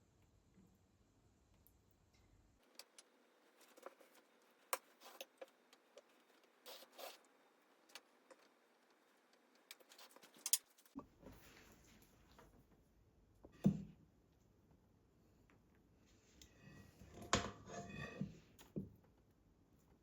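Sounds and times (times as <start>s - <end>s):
rustles and scrapes: 2.6s - 12.7s, 16.0s - 18.6s.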